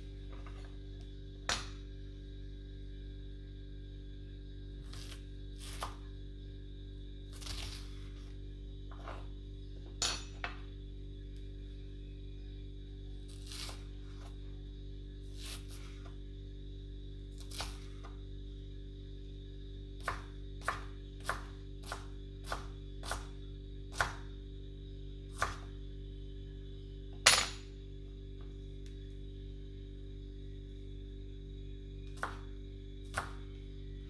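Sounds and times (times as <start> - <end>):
steady hum: 0.0 - 34.0
blade slicing onion: 4.9 - 6.0, 7.3 - 8.3, 13.3 - 14.3, 15.3 - 16.1, 17.4 - 18.1, 20.0 - 24.3, 25.3 - 25.8, 32.1 - 32.5, 33.1 - 33.4.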